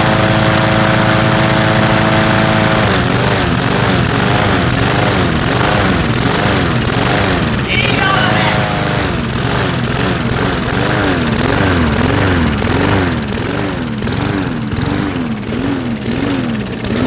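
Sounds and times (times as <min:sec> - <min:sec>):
lawn mower engine running: 0:00.0 - 0:17.0.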